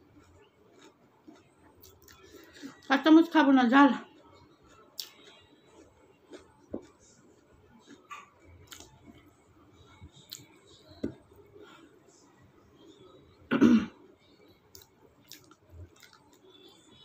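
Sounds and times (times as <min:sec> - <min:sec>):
person chewing: 0:00.0 - 0:02.9, 0:04.1 - 0:11.2, 0:14.7 - 0:16.7
throat sound like a cough: 0:13.5 - 0:14.0.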